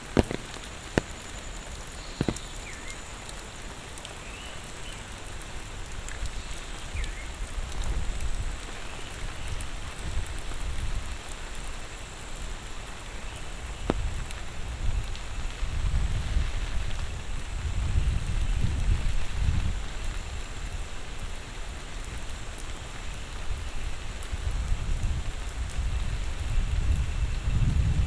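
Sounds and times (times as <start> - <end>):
steady rain hissing: 0.0 - 28.0.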